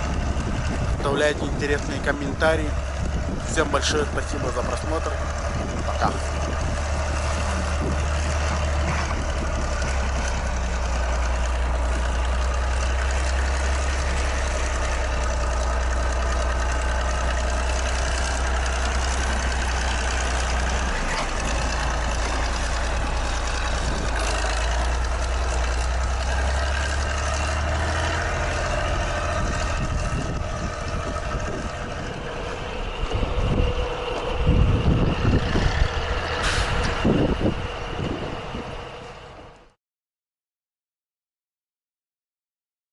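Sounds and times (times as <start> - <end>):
low engine thumps: 0.0 - 26.3, 27.8 - 38.8
diesel tractor engine running: 0.0 - 39.8.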